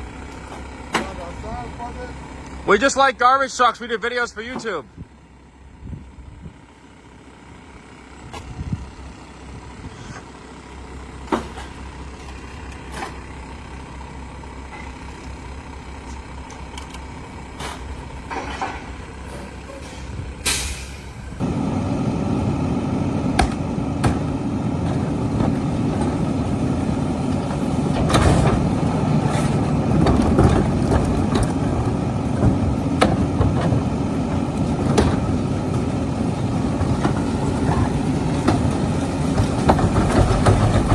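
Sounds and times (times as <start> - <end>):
garbage truck engine running: 0.0 - 40.9
metal clanks: 16.1 - 21.2
air hiss: 19.6 - 21.2.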